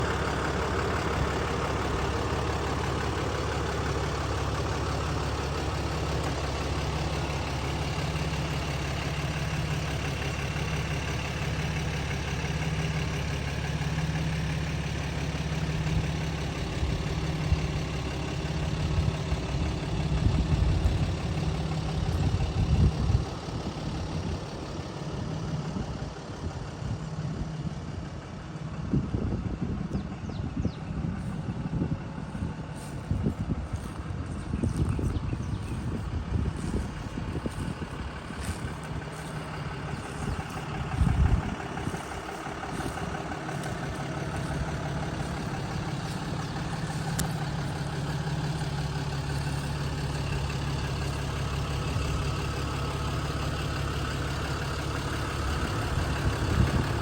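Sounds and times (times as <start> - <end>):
pickup truck engine idling: 0.0 - 57.0
low rumbles and bumps: 20.1 - 23.3, 28.8 - 51.9.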